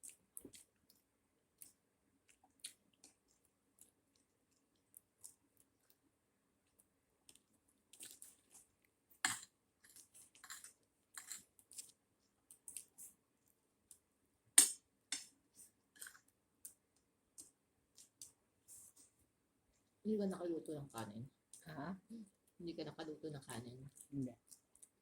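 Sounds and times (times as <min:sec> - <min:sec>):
soft chewing and mouth clicks: 0:00.0 - 0:09.2, 0:09.8 - 0:14.1, 0:15.6 - 0:20.0, 0:23.9 - 0:25.0.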